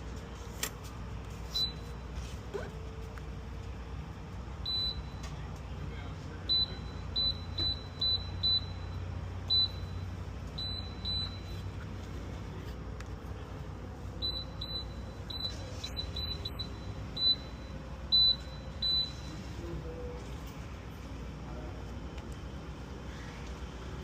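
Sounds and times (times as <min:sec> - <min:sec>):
steady low hum: 0:00.0 - 0:24.0
keypad beeps: 0:01.5 - 0:02.0, 0:04.7 - 0:05.3, 0:06.5 - 0:11.7, 0:14.2 - 0:19.4.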